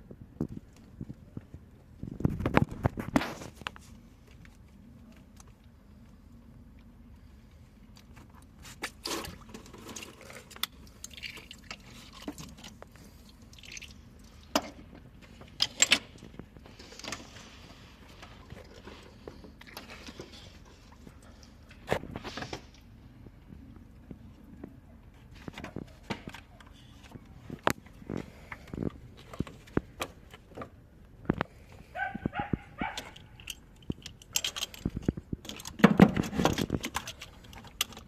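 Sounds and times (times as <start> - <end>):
tools clicking and knocking: 32.9 - 38.0.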